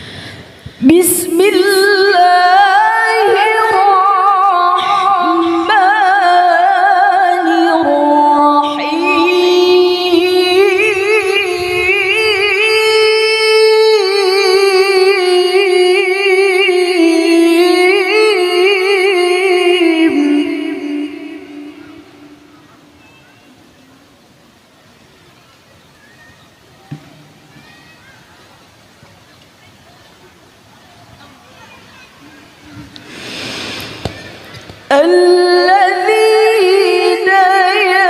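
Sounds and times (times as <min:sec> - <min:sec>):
woman reciting melodically: 0:00.8 - 0:23.6, 0:34.9 - 0:38.0.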